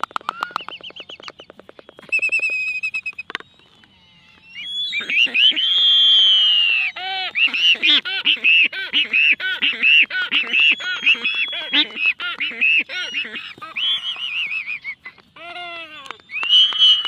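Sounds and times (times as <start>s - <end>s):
pitched animal calls: 2.0s - 17.0s
long held animal call: 3.6s - 17.0s.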